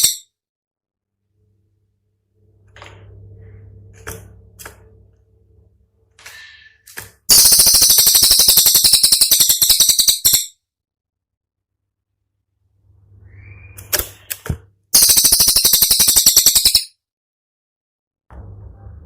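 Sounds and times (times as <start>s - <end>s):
bird rapid high rattle: 7.3s - 10.5s, 15.0s - 16.9s.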